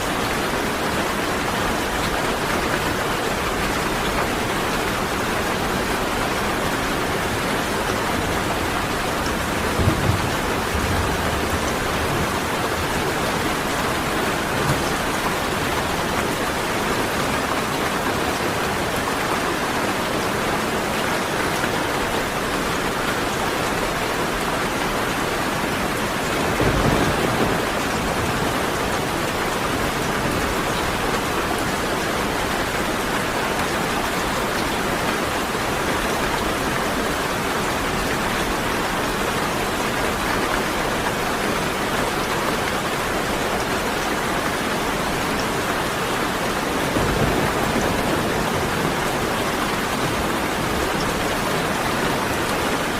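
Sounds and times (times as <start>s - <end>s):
steady rain: 0.0s - 52.9s
low rumbles of thunder: 8.4s - 15.6s, 26.3s - 30.5s, 46.8s - 51.2s.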